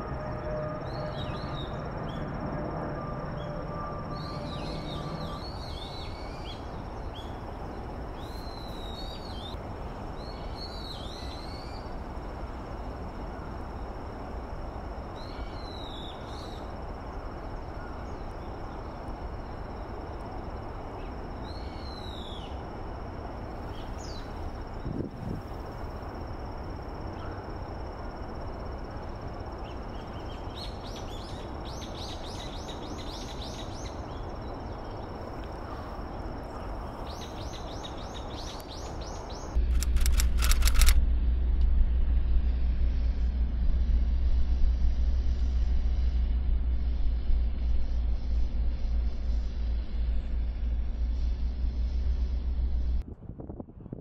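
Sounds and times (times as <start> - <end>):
outdoor background rush: 0.0 - 54.0.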